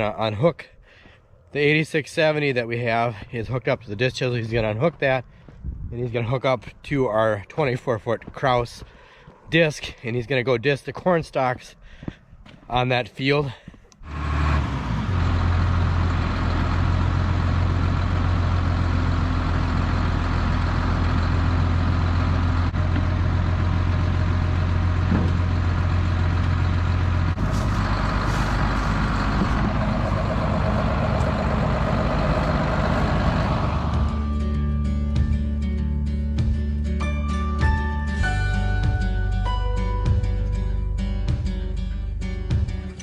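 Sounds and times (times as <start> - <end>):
tractor engine running: 13.8 - 35.6.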